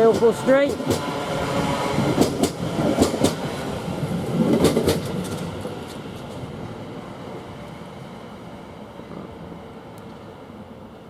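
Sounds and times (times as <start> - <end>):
train running on track: 0.0 - 11.0
wheels clicking over rail joints: 4.3 - 6.5.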